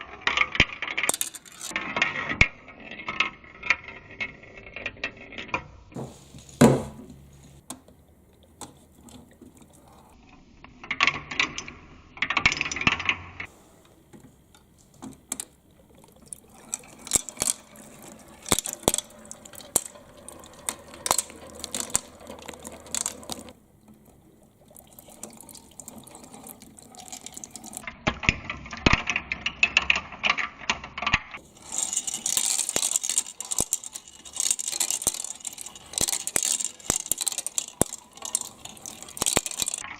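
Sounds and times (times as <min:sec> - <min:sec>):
marbles clicking down a track: 0:00.3 - 0:01.8, 0:16.1 - 0:24.1, 0:24.8 - 0:30.4, 0:31.0 - 0:39.9.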